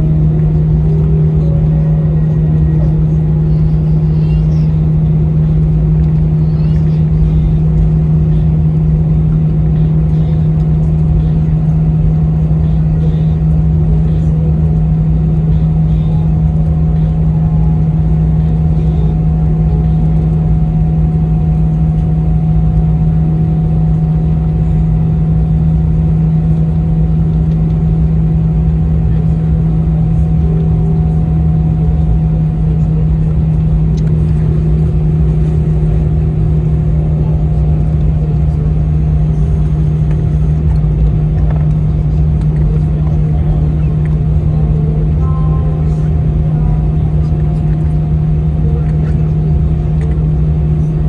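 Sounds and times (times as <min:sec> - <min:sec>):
airplane cabin engine drone: 0:00.0 - 0:51.0.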